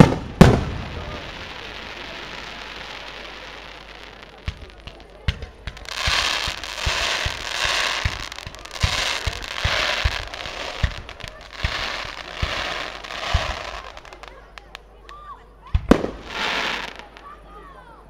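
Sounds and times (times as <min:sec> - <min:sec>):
firework bangs: 0:00.0 - 0:14.8, 0:15.7 - 0:17.2
hissing crackling sparks: 0:00.0 - 0:15.0
firework launch thumps and bursts: 0:04.4 - 0:13.8.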